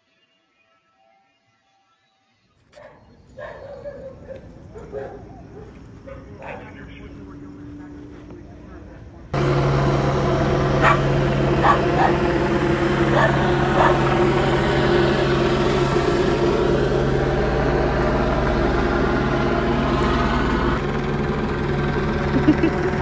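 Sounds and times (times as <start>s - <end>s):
dog barking: 2.8s - 6.9s, 10.8s - 12.3s, 13.1s - 14.2s.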